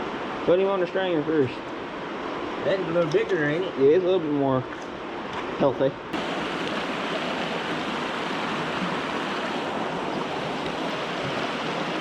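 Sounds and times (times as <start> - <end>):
stream water rushing: 5.0 - 12.0.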